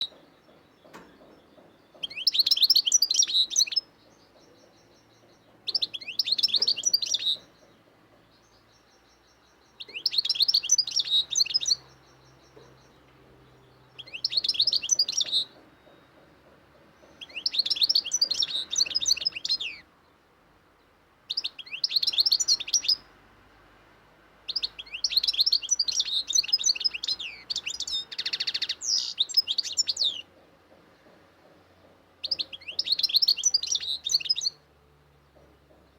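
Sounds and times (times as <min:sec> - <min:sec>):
songbird chirping and trilling: 0:00.0 - 0:23.2, 0:24.5 - 0:35.9.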